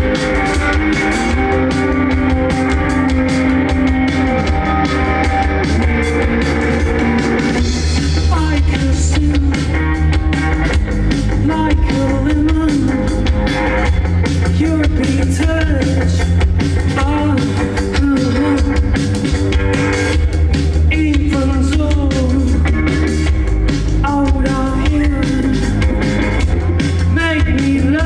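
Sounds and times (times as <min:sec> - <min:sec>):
bass guitar: 0:00.0 - 0:28.0
drum kit: 0:00.0 - 0:28.0
electric guitar: 0:00.0 - 0:28.0
person singing: 0:08.0 - 0:13.5, 0:14.4 - 0:19.2, 0:20.9 - 0:23.3, 0:24.0 - 0:28.0.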